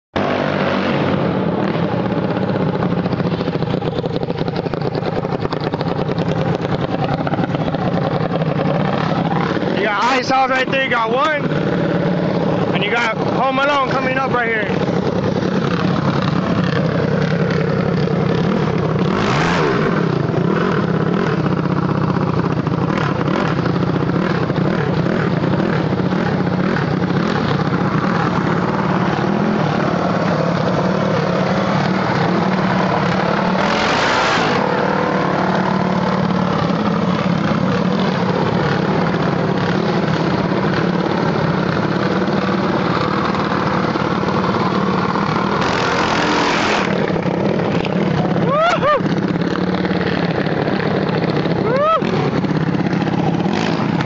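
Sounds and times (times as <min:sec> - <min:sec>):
minibike engines idling and revving: 0:00.1 - 0:54.0
rushes of noise: 0:26.9 - 0:40.4, 0:45.0 - 0:54.0.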